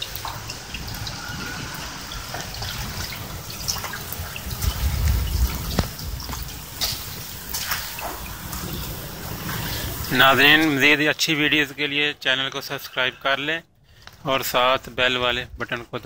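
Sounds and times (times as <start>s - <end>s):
drips splashing in puddles: 0.0s - 12.9s
rain on concrete rooftop: 0.0s - 16.0s
low rumble: 0.1s - 10.1s.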